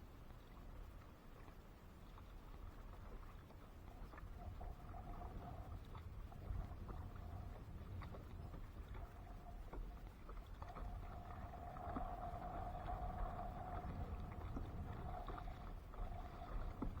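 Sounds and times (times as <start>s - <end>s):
faint steady hum: 0.0s - 17.0s
water lapping against kayak hull: 0.0s - 17.0s
low rumble: 4.2s - 17.0s.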